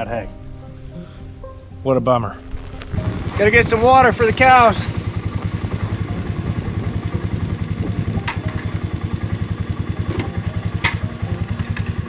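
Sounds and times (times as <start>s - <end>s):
vehicle engine running: 2.5s - 12.0s.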